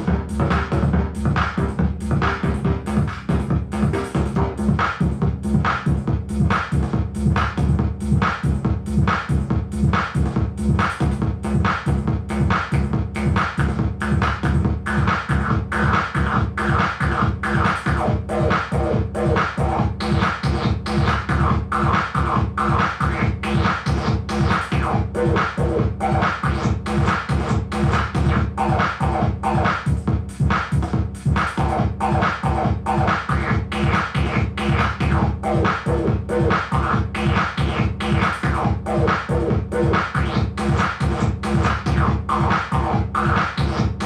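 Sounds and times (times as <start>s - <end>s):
heavy low rumble: 0.0s - 8.2s
distorted fast drum machine beat: 0.0s - 44.0s.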